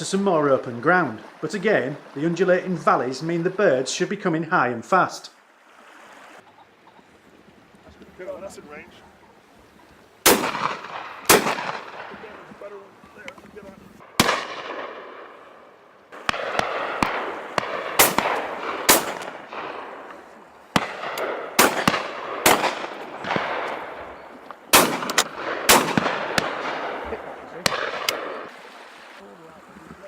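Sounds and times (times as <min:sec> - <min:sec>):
shotguns firing with echo: 0:10.2 - 0:12.6, 0:14.0 - 0:28.5.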